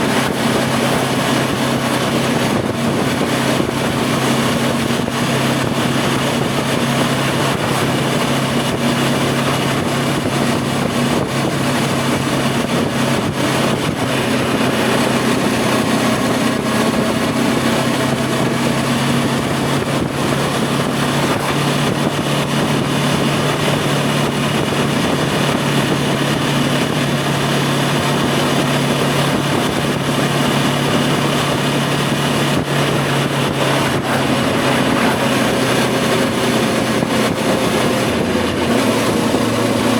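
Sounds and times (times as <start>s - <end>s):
motorcycle engine running: 0.0s - 39.9s
wind rush over microphone: 0.0s - 39.9s.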